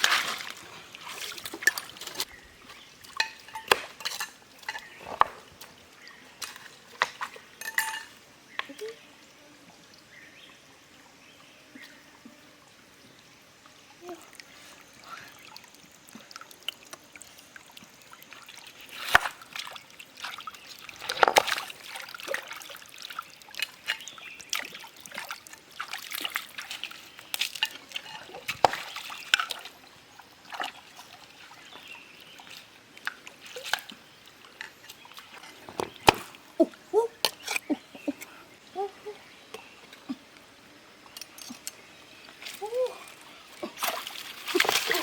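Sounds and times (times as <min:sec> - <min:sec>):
water sloshing and splashing: 0:00.0 - 0:08.1, 0:14.3 - 0:37.8, 0:42.4 - 0:45.0.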